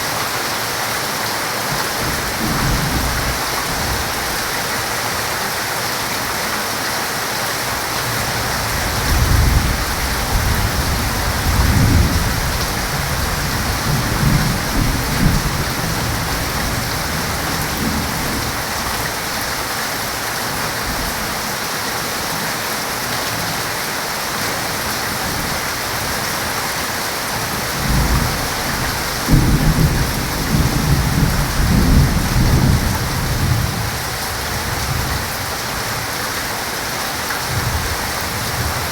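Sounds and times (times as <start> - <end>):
heavy rain hissing: 0.0 - 38.9
low thunder rolling: 8.8 - 18.5, 27.8 - 35.2.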